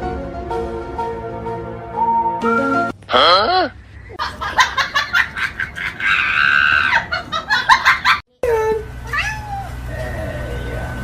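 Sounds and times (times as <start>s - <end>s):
person laughing hard: 3.2s - 8.2s.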